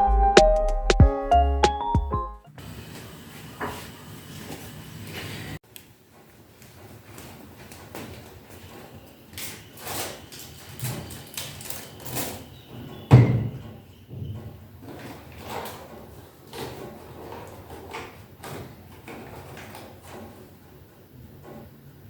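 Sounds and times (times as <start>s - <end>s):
kitchen knocks and clatters: 6.6s - 20.7s.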